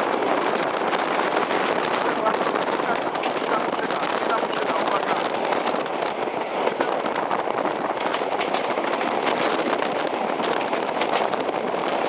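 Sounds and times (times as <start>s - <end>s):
train wheel and wind rush: 0.0s - 12.0s
wheels clicking and rattling: 0.4s - 12.0s.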